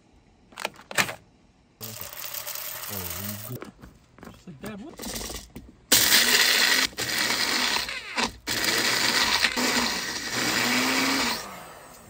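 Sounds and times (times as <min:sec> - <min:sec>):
blender grinding coffee beans: 0:01.8 - 0:03.6, 0:05.0 - 0:12.0.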